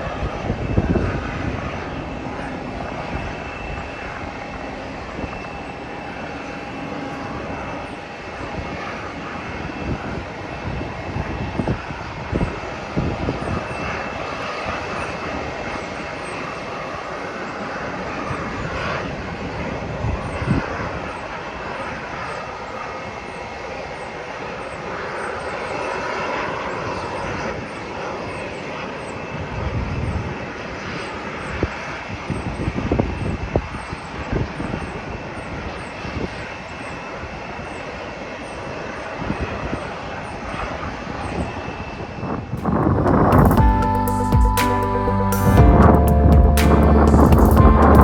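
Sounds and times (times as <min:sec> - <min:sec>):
wind buffeting microphone: 0:00.0 - 0:15.7, 0:40.6 - 0:43.8
airliner engines running: 0:00.0 - 0:48.0.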